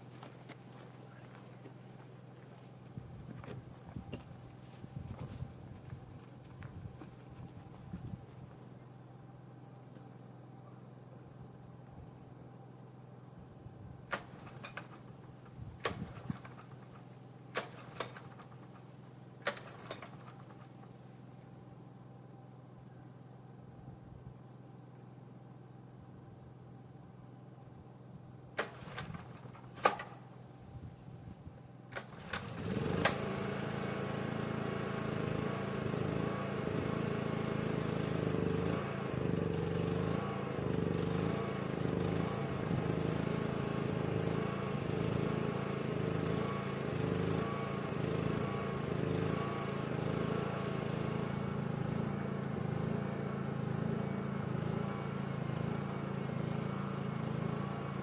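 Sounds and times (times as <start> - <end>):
generator engine sputtering: 14.1 - 21.2, 28.5 - 30.4, 31.9 - 58.0.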